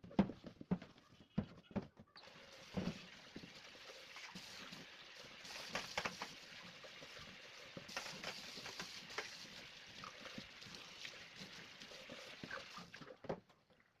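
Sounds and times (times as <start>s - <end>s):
water running: 2.2s - 14.0s.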